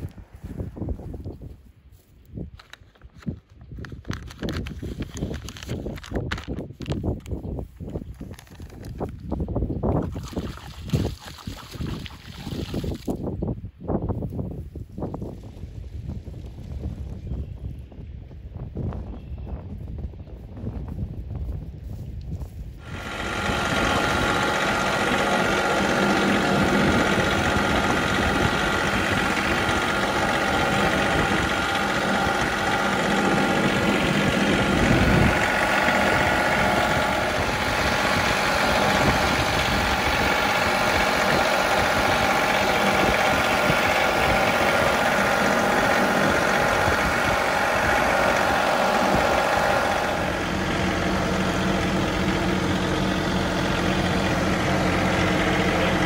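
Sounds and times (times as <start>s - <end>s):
tractor diesel engine running: 0.0s - 3.2s, 22.7s - 56.0s.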